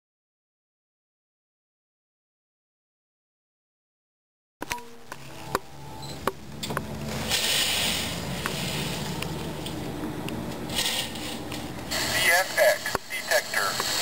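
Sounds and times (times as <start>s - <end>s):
vehicle engine humming: 4.6s - 14.0s.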